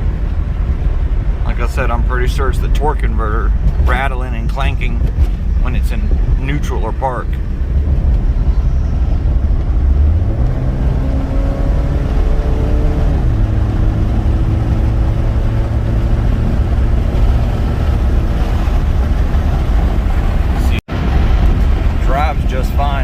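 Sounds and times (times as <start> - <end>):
car engine pulling: 0.0 - 23.0
road rumble: 0.0 - 23.0.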